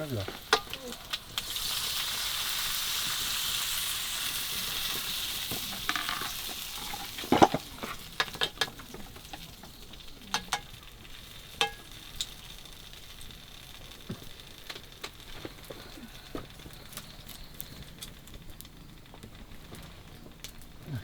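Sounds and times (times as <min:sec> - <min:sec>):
food sizzling in a pan: 0:00.0 - 0:18.0
utensil scraping a pan: 0:04.6 - 0:10.7.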